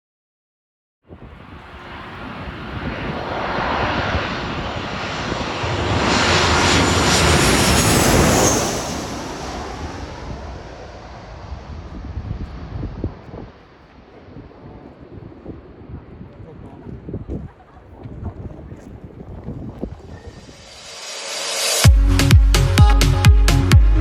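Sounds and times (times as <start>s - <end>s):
jet airliner roar passing overhead: 1.1s - 17.5s, 18.1s - 21.9s
high jet whine: 1.2s - 14.8s, 19.8s - 24.0s.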